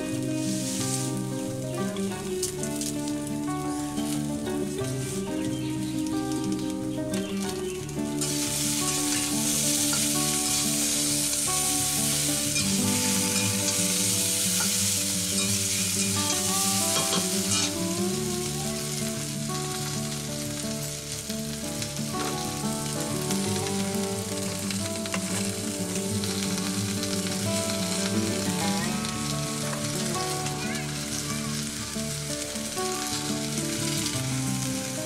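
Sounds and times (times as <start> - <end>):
background music: 0.0 - 35.0
chicken sizzling in hot oil: 0.0 - 35.0
metal spatula scraping: 14.6 - 17.8.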